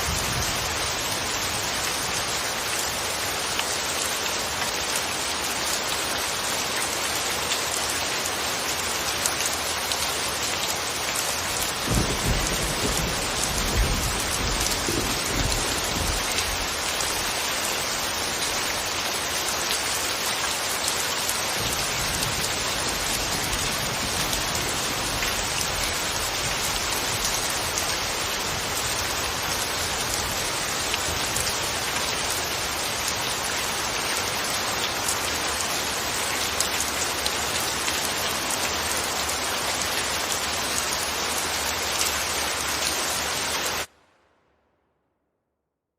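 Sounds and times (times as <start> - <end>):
steady rain: 0.0 - 44.3
thunder rumble: 11.8 - 16.8.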